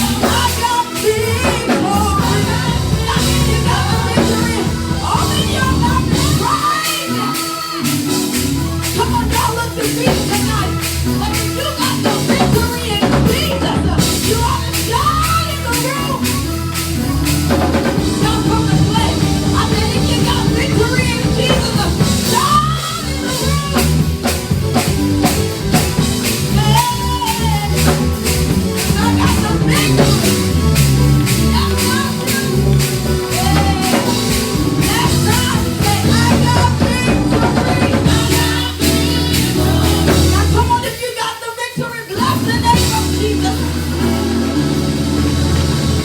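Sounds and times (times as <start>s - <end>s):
person singing: 0.0s - 44.6s
live band playing: 0.0s - 46.0s
drum kit hitting: 12.2s - 40.9s.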